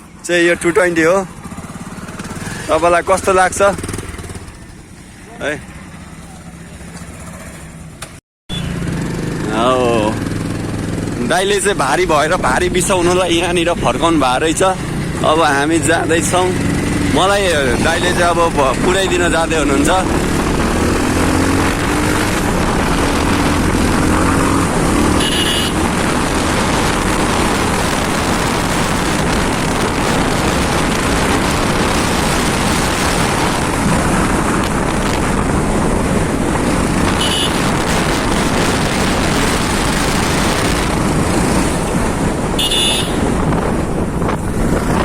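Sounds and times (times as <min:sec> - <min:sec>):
motorcycle engine running: 0:00.0 - 0:45.0
wind rush on microphone: 0:09.9 - 0:45.0.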